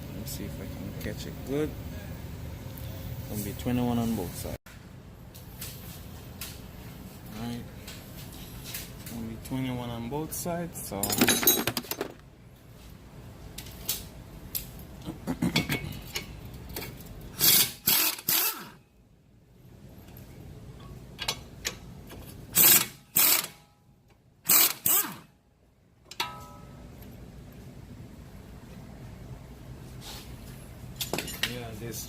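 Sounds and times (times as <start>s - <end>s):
impact wrench bursts: 17.4s - 18.8s, 22.5s - 23.6s, 24.4s - 25.3s
ringing metal clink: 26.1s - 27.1s.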